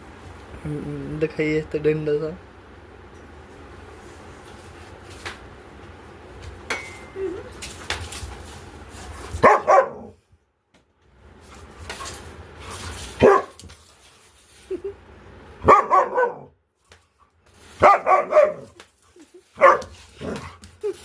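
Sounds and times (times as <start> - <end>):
dog barking: 9.4 - 10.2, 13.2 - 13.6, 15.6 - 16.6, 17.8 - 18.8, 19.6 - 20.5.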